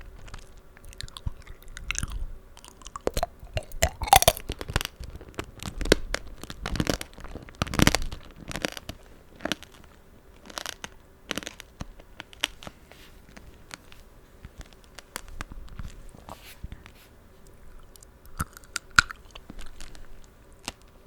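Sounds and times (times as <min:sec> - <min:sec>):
chewing crunchy candied fruit: 0:00.3 - 0:05.0, 0:17.7 - 0:20.9.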